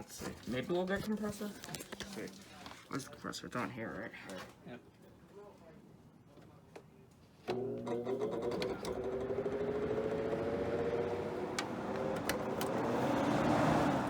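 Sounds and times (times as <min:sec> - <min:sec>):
air conditioner compressor humming: 0:07.5 - 0:13.2.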